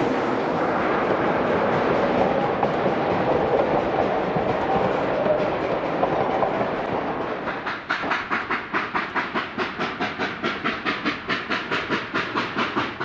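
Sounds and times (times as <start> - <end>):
steam locomotive exhaust chuffs: 0.0 - 13.0
steam locomotive hiss: 0.0 - 13.0.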